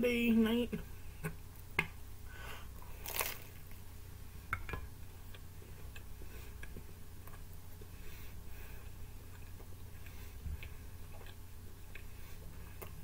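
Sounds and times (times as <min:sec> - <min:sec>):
low steady hum: 0:00.0 - 0:13.0
biting and chewing pizza: 0:08.6 - 0:13.0.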